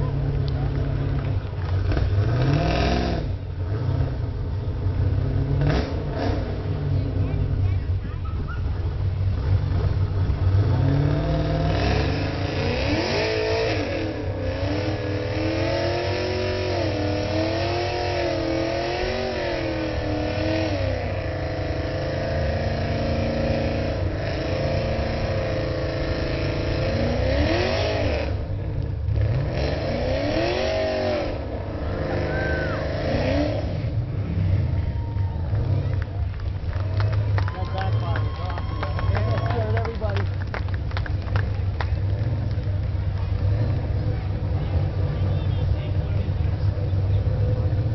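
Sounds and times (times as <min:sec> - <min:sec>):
car engine revving hard: 0:00.0 - 0:04.3, 0:04.9 - 0:07.2, 0:09.4 - 0:34.8.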